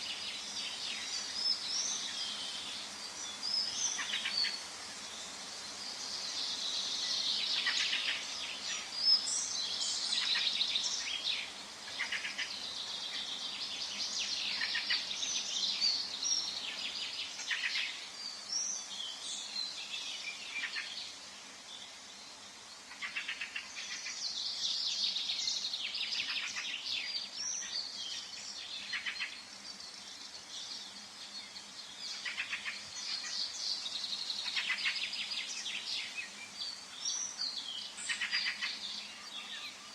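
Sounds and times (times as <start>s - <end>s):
small birds singing and chirping: 0.0s - 39.9s.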